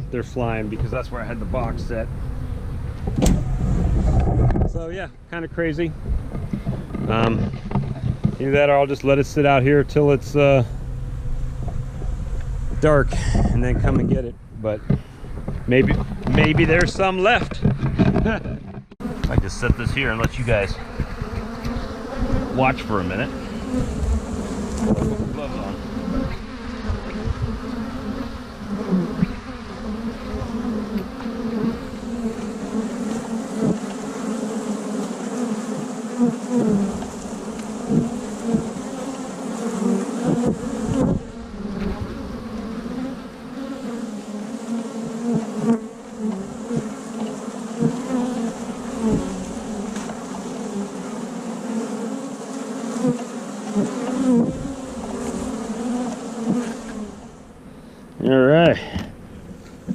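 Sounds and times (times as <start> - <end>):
honey bees buzzing: 0.0 - 14.2, 14.8 - 59.9
bee zooming past: 19.0 - 57.8.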